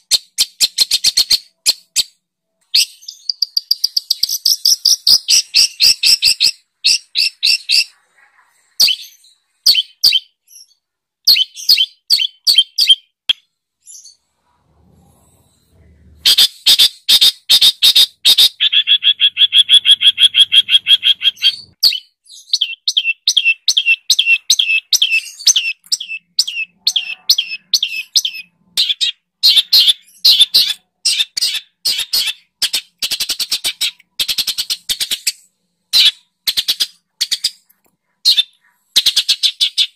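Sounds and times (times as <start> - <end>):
songbird singing high chirps: 2.8 - 7.9, 18.3 - 30.4.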